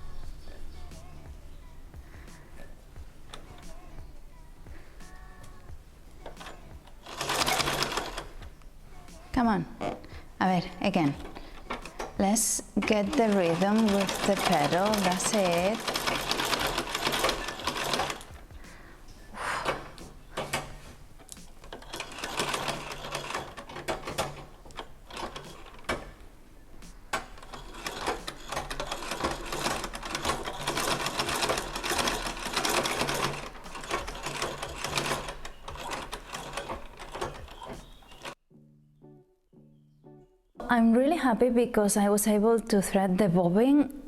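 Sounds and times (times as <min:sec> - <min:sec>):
treadle sewing machine clattering: 0:06.3 - 0:08.3, 0:11.0 - 0:18.3, 0:21.5 - 0:26.2, 0:27.1 - 0:38.4.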